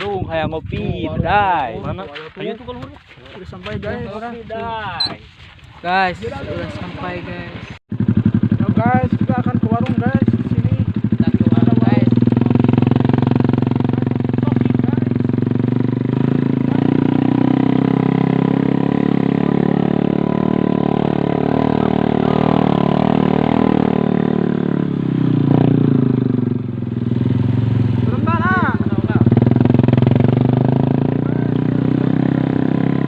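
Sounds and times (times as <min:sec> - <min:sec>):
motorcycle engine running: 0:07.9 - 0:33.0.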